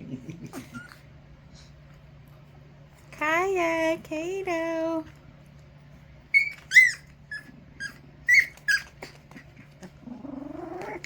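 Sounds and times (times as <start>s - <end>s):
puppies yipping: 6.3s - 9.2s.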